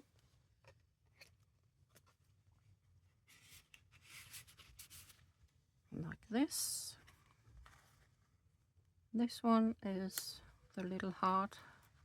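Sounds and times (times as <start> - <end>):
paper and card rustling: 3.3 - 5.3.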